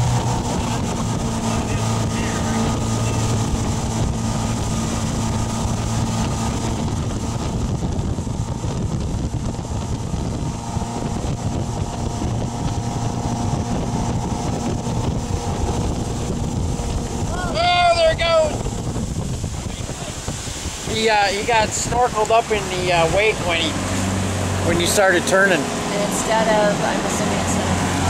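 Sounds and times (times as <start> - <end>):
boat engine droning: 0.0 - 28.0
rushing water: 0.0 - 28.0
wind on microphone: 0.0 - 28.0.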